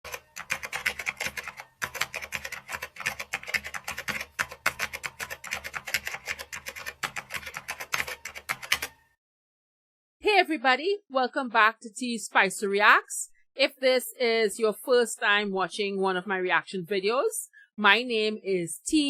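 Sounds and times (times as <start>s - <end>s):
rapid keyboard typing: 0.0s - 9.0s.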